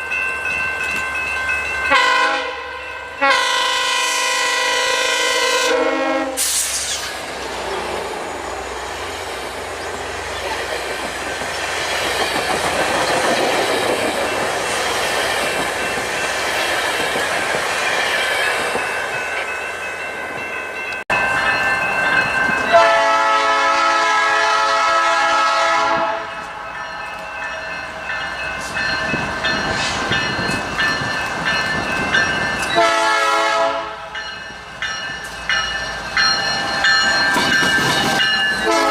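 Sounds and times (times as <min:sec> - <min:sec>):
train horn chord: 0:01.9 - 0:06.5, 0:22.7 - 0:26.6, 0:32.8 - 0:34.2, 0:38.6 - 0:38.9
train wheels clattering over rails: 0:08.9 - 0:19.5, 0:35.0 - 0:38.9.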